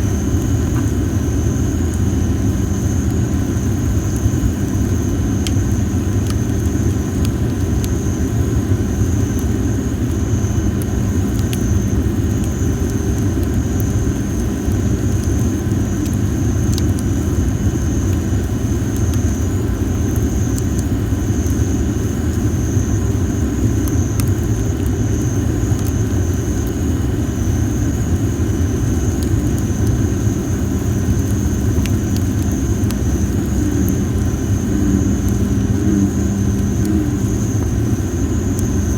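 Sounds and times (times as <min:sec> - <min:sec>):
campfire crackling: 0:00.0 - 0:38.9
high-pitched whine: 0:27.4 - 0:38.9.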